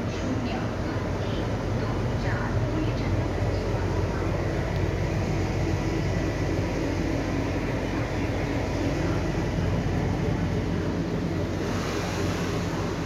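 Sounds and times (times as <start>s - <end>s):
train coach rumble and hum: 0.0s - 13.0s.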